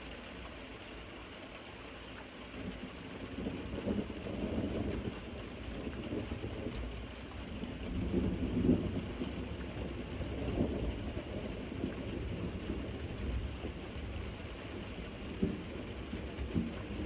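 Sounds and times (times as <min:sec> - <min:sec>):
steady rain: 0:00.0 - 0:17.0
low rolling thunder: 0:03.2 - 0:17.0.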